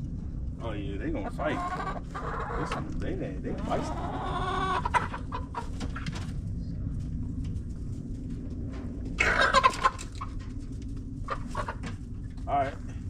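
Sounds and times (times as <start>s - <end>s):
young chickens clucking and squawking: 1.2s - 6.3s, 9.0s - 12.4s.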